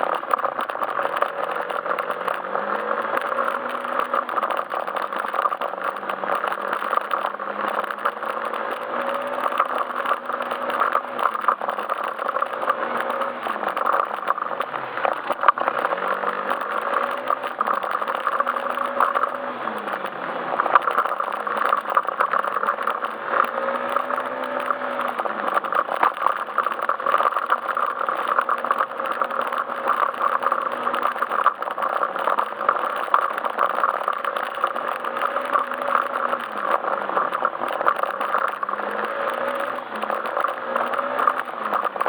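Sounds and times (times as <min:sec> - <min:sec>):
road noise: 0:00.0 - 0:42.0
scooter engine running: 0:00.0 - 0:42.0.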